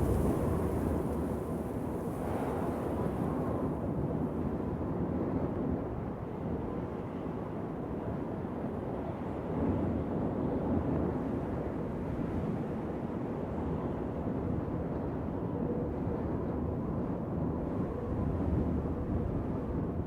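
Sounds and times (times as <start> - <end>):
steady wind: 0.0 - 20.0.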